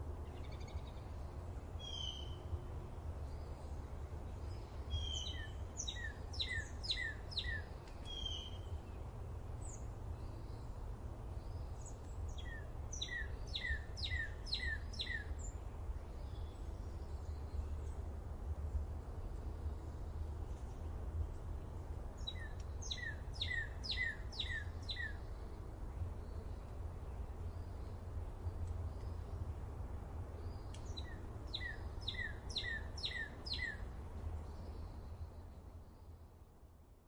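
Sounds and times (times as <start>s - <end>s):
small birds chirping: 4.4s - 9.0s, 11.4s - 18.0s, 22.2s - 29.5s, 30.4s - 36.2s.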